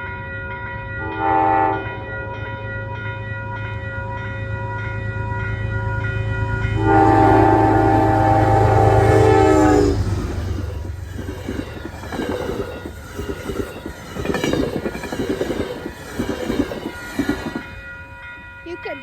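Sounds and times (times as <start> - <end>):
locomotive horn blast: 1.0 - 2.0, 6.7 - 10.6
locomotive engine rumble: 3.5 - 18.2
train wheels clacking on rails: 6.7 - 19.0.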